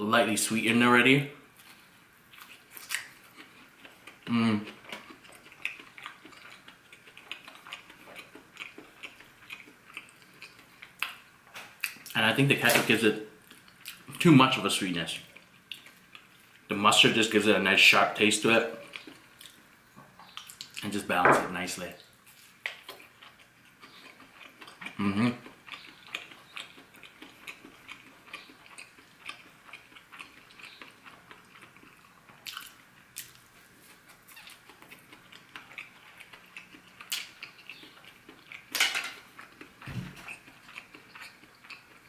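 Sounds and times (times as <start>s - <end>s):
person chewing food: 1.6s - 12.2s, 15.2s - 16.7s, 18.8s - 20.9s, 22.3s - 42.0s.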